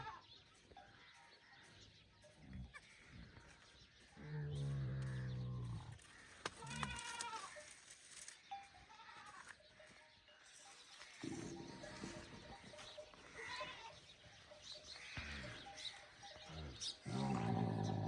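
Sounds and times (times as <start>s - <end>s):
livestock bleating: 4.3s - 7.7s, 8.8s - 9.6s, 11.2s - 14.1s, 15.0s - 18.0s.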